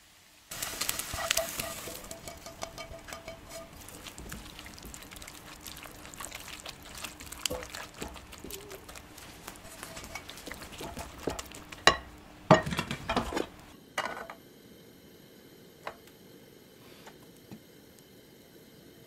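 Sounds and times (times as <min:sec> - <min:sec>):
food sizzling in a hot pan: 0:00.0 - 0:13.8.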